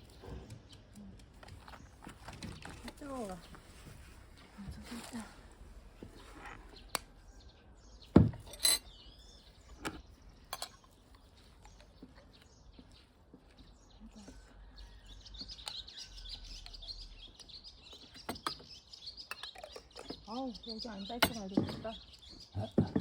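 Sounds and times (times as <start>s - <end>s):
small birds chirping: 0.0s - 23.0s
light clinks: 8.4s - 9.0s, 10.5s - 11.0s.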